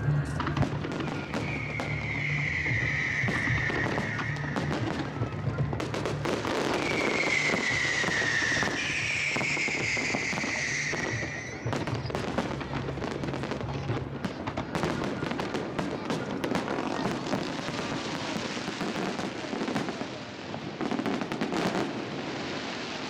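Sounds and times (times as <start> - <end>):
high whistling tone: 0.0 - 5.5, 6.4 - 11.6
fireworks bangs and crackles: 0.0 - 23.0.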